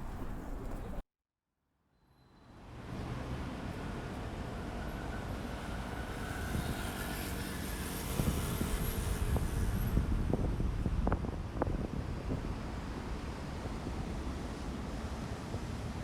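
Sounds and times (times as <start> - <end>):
wind buffeting microphone: 8.0 - 14.2.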